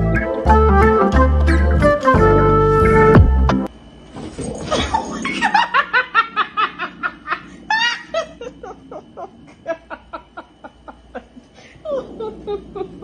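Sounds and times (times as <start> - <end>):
person laughing hard: 4.7 - 13.0.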